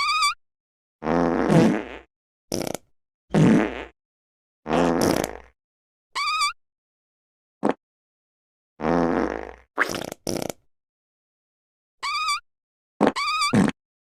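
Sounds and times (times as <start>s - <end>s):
fake fart sounds: 1.0s - 4.0s, 4.7s - 5.6s, 8.8s - 10.7s, 13.0s - 13.8s.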